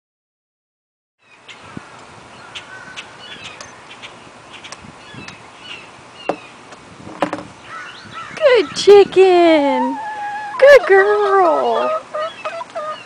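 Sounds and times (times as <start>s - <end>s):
bird chirps and calls: 1.2s - 6.6s, 7.6s - 9.1s, 9.8s - 13.0s
steady background hiss: 1.2s - 13.0s.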